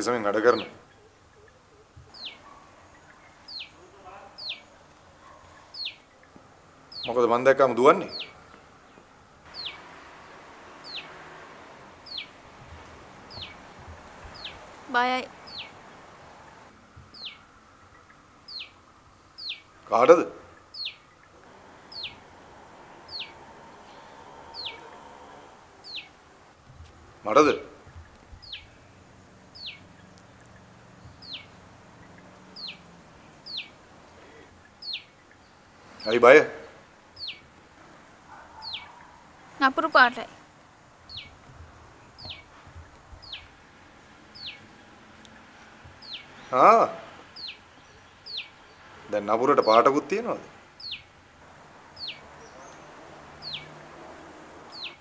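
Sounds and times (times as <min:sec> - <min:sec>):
faint outdoor background hiss: 0:00.0 - 0:55.0
faint low hum: 0:00.6 - 0:40.5
bird whistling: 0:09.5 - 0:09.8, 0:10.8 - 0:11.2, 0:12.0 - 0:12.3, 0:13.3 - 0:13.6, 0:15.4 - 0:15.8, 0:23.1 - 0:24.9
bird chirp sliding downward: 0:09.5 - 0:17.4, 0:20.8 - 0:26.2.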